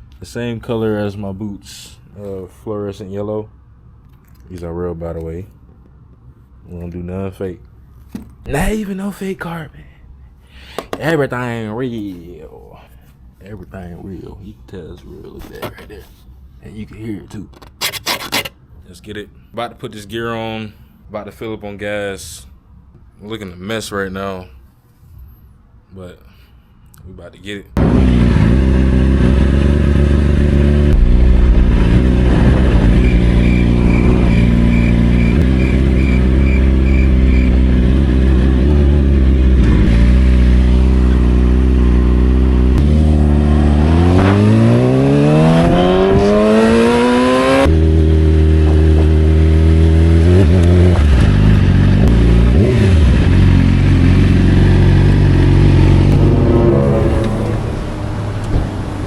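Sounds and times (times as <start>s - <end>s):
motorcycle engine revving: 56.0s - 58.4s.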